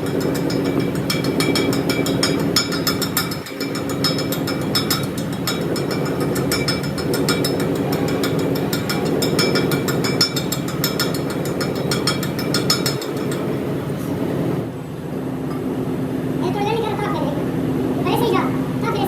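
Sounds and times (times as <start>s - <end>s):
metallic clicking and rattling: 0.0s - 14.2s.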